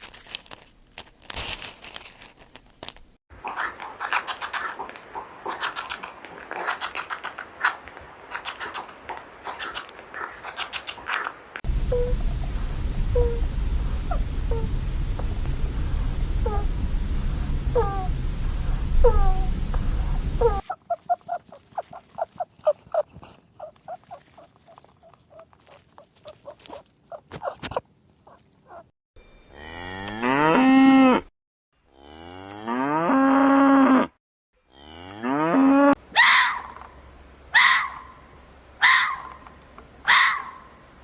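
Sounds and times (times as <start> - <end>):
cattle mooing: 29.5 - 31.2
quick high animal calls: 36.2 - 37.0, 37.6 - 38.2, 38.8 - 39.5, 40.1 - 40.8.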